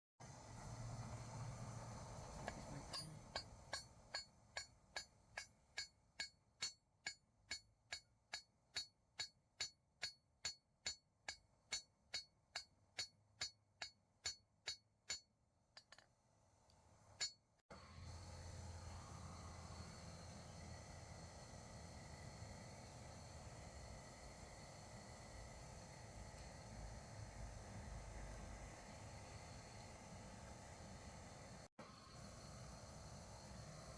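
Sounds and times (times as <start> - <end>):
hammer striking metal on anvil: 2.9 - 16.1.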